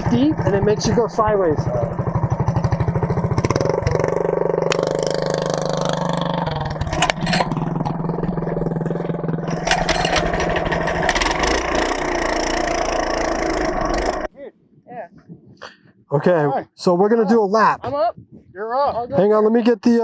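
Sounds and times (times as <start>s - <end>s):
minibike engine running: 0.0s - 14.3s.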